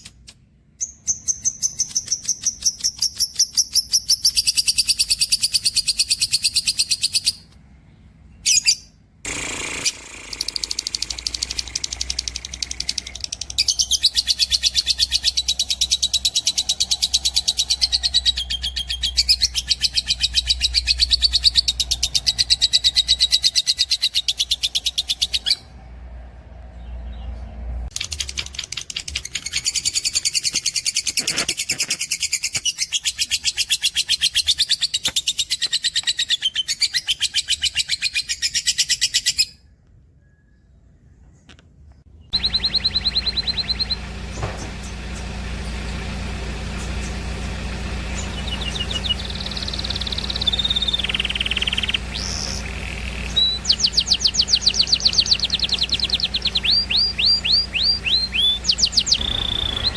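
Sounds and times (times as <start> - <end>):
birds chattering and trilling: 0.8 - 25.7, 40.2 - 59.9.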